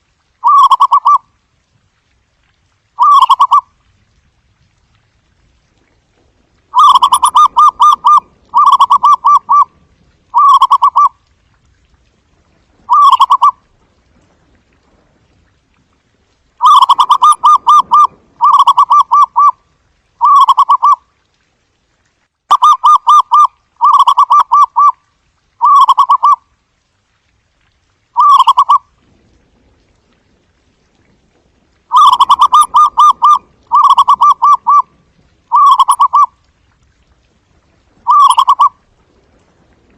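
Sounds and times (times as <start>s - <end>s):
dove cooing: 0.4s - 1.2s, 6.8s - 9.7s, 10.3s - 11.1s, 12.9s - 13.6s, 16.6s - 19.6s, 20.2s - 21.0s, 31.9s - 34.9s, 35.5s - 36.3s, 38.0s - 38.8s.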